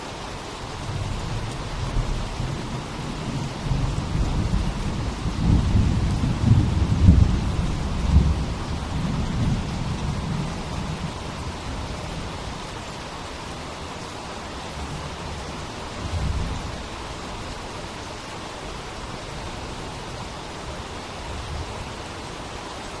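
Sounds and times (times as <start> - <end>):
steady rain hiss: 0.0 - 23.0
low thunder rumble: 0.9 - 12.2.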